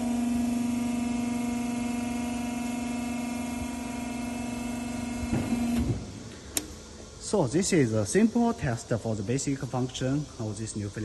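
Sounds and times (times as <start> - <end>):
motor humming: 0.0 - 7.0.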